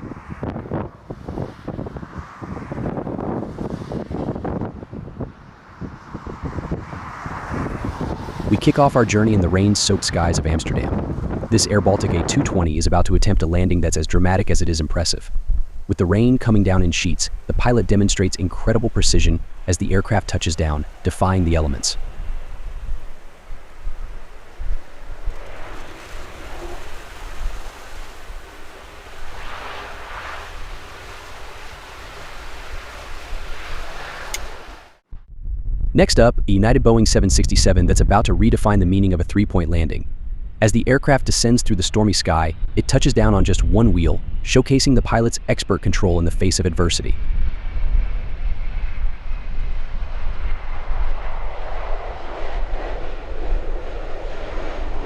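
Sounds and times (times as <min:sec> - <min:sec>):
jet engines rumbling: 0:00.0 - 0:35.1, 0:36.0 - 0:55.0
strong wind buffeting microphone: 0:00.0 - 0:55.0
rushing noise: 0:05.4 - 0:35.0.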